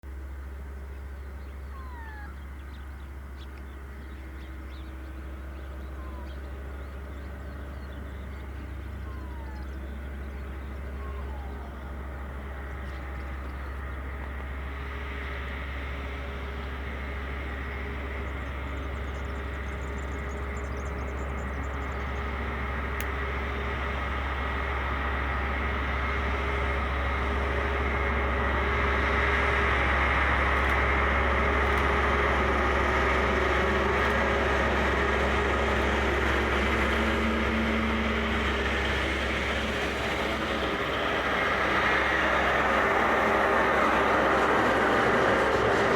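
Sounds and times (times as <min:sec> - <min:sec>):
diesel locomotive engine drone: 0:00.0 - 0:45.9
bird chirps: 0:00.9 - 0:14.4.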